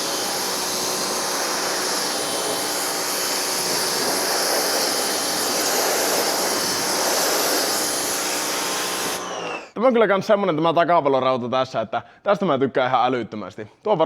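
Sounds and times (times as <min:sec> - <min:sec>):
pressure washer spraying water: 0:00.0 - 0:09.7.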